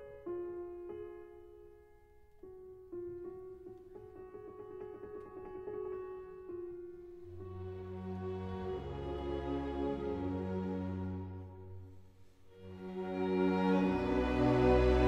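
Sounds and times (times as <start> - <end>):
slow solo piano melody: 0.0 - 7.7.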